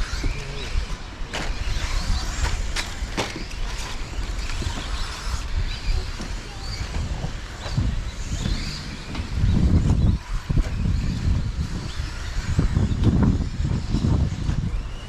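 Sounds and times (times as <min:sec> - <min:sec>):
rc truck motor whines: 0:00.0 - 0:15.0
wind rumble on microphone: 0:00.0 - 0:15.0.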